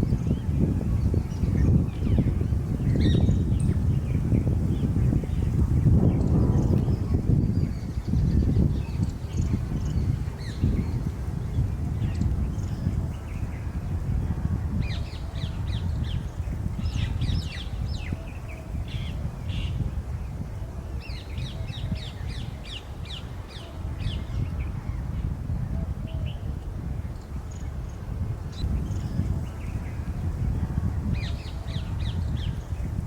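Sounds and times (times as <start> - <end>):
steady low rumble: 4.7 - 10.0.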